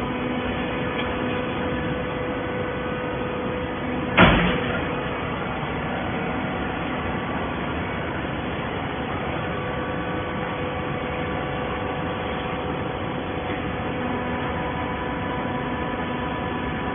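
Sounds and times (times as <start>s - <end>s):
baler machine humming: 0.0s - 16.9s.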